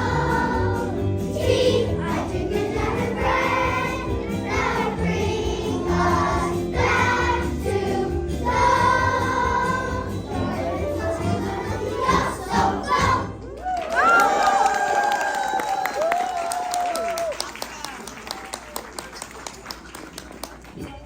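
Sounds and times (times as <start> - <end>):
children's choir singing: 0.0 - 13.4
musical accompaniment: 0.0 - 13.5.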